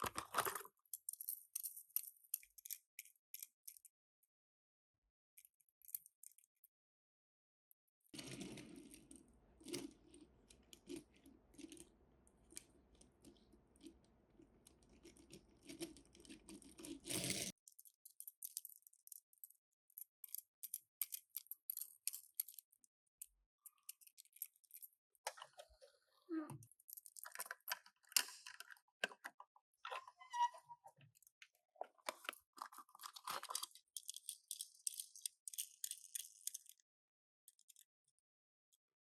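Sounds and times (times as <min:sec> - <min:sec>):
toy cars clicking: 0:15.0 - 0:25.6, 0:32.0 - 0:36.8.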